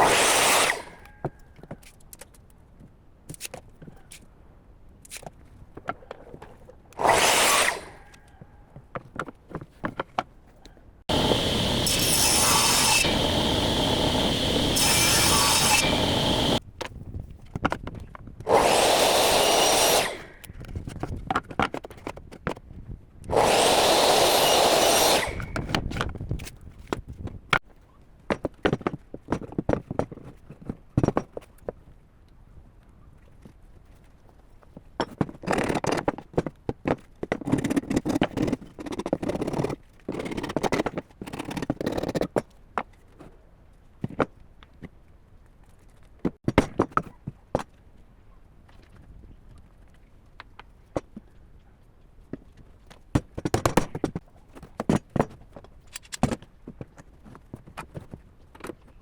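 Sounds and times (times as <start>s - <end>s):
power tool cutting wood: 0.0s - 1.0s, 7.0s - 8.0s, 11.1s - 16.6s, 18.5s - 20.4s, 23.3s - 25.6s.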